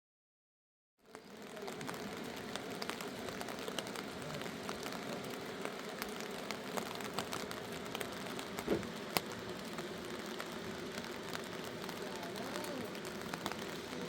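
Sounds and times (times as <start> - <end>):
steady rain: 1.0 - 14.0
thump: 8.7 - 8.9.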